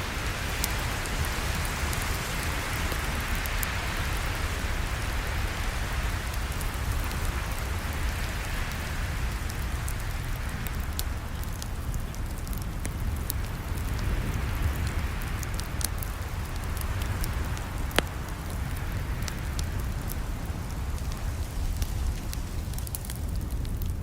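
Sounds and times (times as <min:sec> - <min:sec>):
campfire crackling: 0:00.0 - 0:24.0
sharp pops of burning wood: 0:10.6 - 0:24.0.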